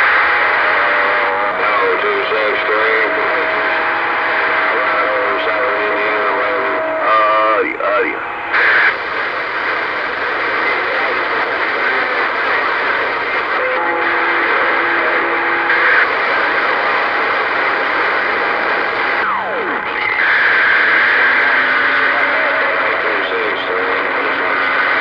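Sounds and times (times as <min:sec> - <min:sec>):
radio static hiss: 0:00.0 - 0:25.0.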